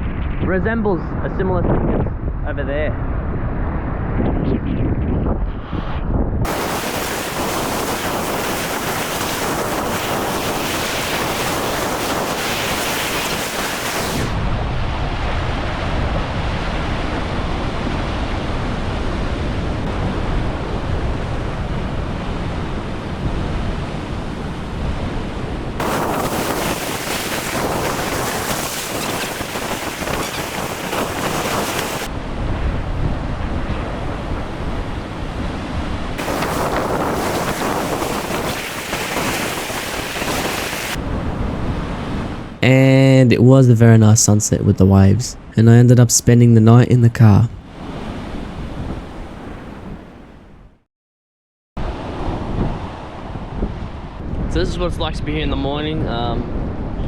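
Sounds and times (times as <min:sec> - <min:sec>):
wind rumbling on microphone: 0:00.0 - 0:42.8, 0:47.4 - 0:50.8, 0:51.8 - 0:57.0
ocean waves breaking: 0:06.5 - 0:42.7.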